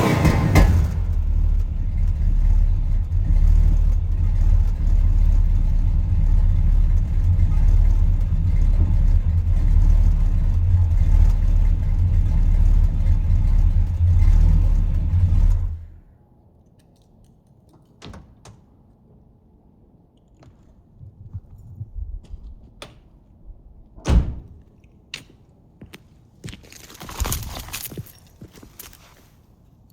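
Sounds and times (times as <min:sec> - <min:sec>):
vee eight engine idling rumble: 0:00.0 - 0:16.0.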